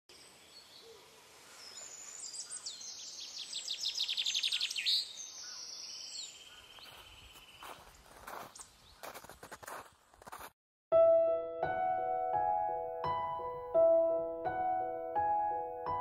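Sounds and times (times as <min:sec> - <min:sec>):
birds chirping and trilling: 0:00.1 - 0:09.3.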